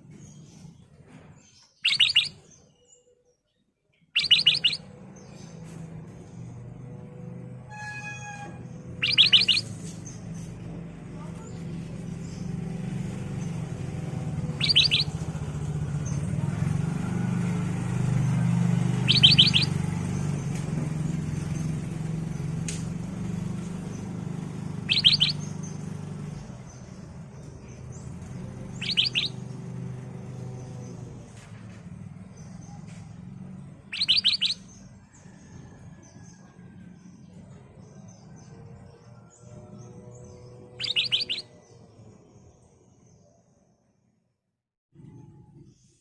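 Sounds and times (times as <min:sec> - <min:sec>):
bulbul calling: 0:01.8 - 0:02.5, 0:04.2 - 0:04.9, 0:08.9 - 0:10.0, 0:14.4 - 0:15.3, 0:19.0 - 0:19.8, 0:24.8 - 0:25.9, 0:28.7 - 0:29.4, 0:33.8 - 0:34.8, 0:40.8 - 0:41.5.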